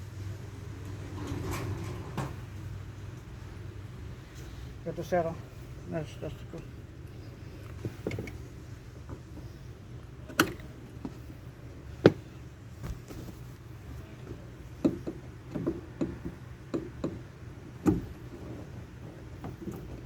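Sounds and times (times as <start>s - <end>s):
steady low hum: 0.0s - 20.0s
sharp knocks and clicks: 14.8s - 18.2s.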